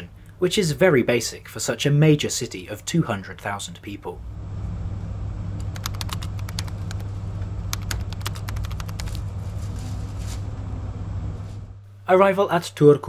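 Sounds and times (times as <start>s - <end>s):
sharp clicks: 7.7s - 9.0s
train rumbling: 9.0s - 11.8s.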